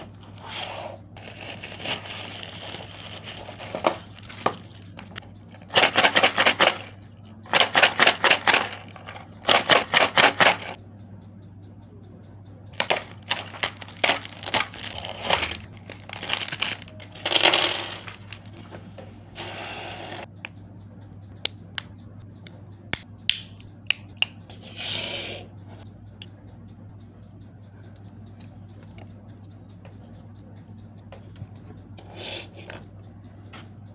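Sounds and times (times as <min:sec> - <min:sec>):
plastic and cardboard rustling: 0:00.0 - 0:06.9, 0:07.5 - 0:10.8, 0:12.8 - 0:18.8
steady low hum: 0:00.0 - 0:33.9
rapid clicks: 0:01.0 - 0:24.6, 0:25.5 - 0:32.0, 0:32.8 - 0:33.9.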